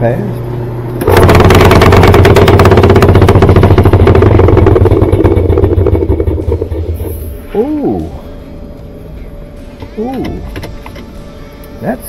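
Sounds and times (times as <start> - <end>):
motor hum: 0.0 - 11.8
washer rapid rattling clatter: 1.1 - 6.3.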